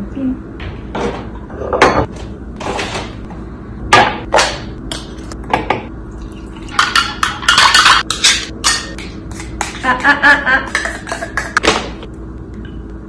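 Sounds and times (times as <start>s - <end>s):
dishes and utensil knocking: 6.7s - 9.8s.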